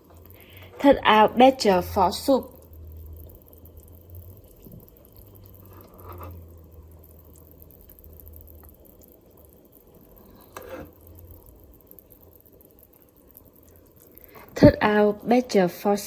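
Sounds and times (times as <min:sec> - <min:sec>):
low steady hum: 0:00.0 - 0:16.0
utensil scraping a pot: 0:05.5 - 0:06.5, 0:10.1 - 0:11.2.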